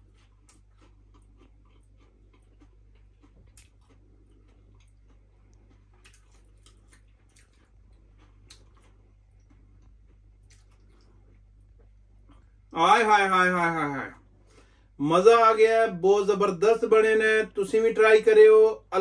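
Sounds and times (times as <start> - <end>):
chewing crunches: 0.0 - 12.7
low steady hum: 0.0 - 19.0.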